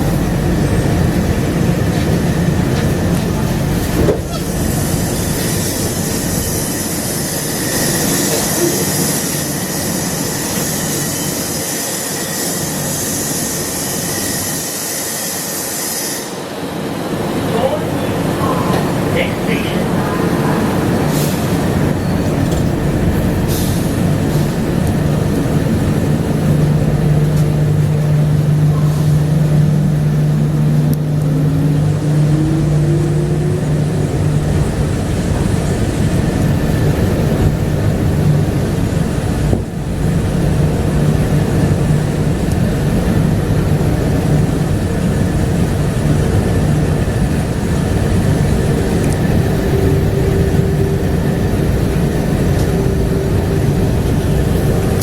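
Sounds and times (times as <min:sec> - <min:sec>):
light rail car rumbling: 0:00.0 - 0:55.0
whine rising in pitch: 0:24.7 - 0:36.6, 0:47.9 - 0:55.0.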